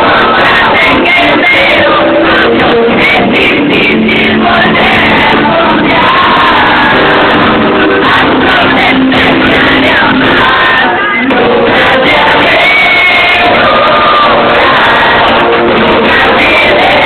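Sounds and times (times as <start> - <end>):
crowd shouting and singing along: 0.0 - 17.0
loud amplified pop music: 0.0 - 17.0.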